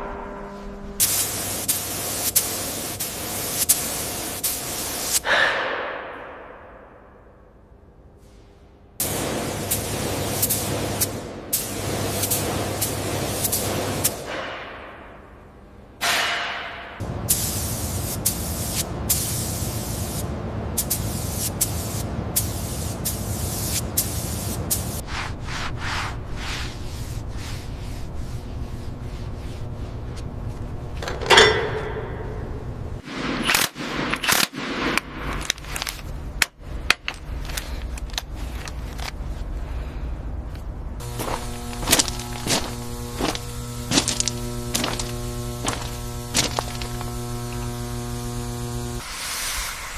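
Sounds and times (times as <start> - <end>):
steady low hum: 16.7 - 33.3, 35.0 - 49.1.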